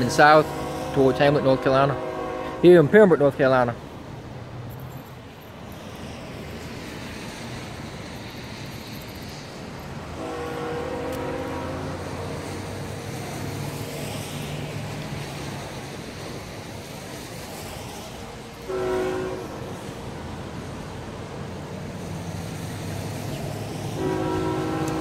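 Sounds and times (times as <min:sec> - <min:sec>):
train horn blast: 0:00.0 - 0:03.1, 0:10.1 - 0:13.5, 0:18.6 - 0:20.0, 0:23.9 - 0:25.0
locomotive engine rumble: 0:00.0 - 0:25.0.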